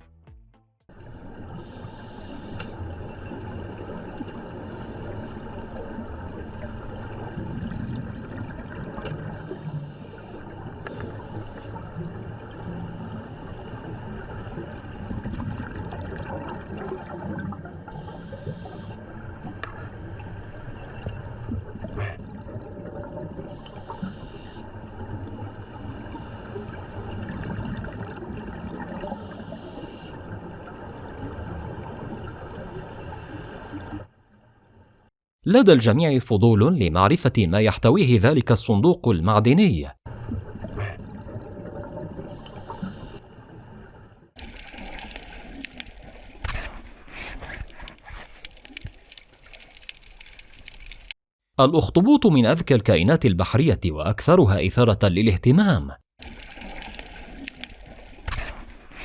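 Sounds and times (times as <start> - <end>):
underwater rushing hiss: 1.6 - 2.8.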